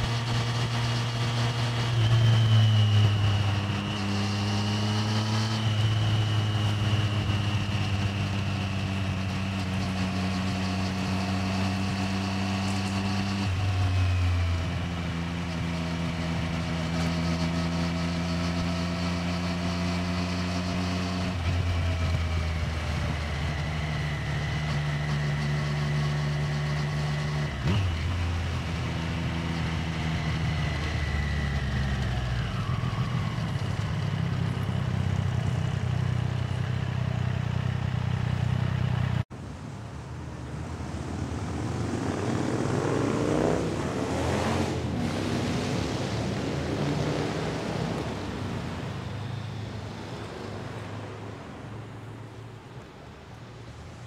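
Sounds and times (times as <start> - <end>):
motorcycle engine: 0.0 - 39.3, 40.7 - 53.1.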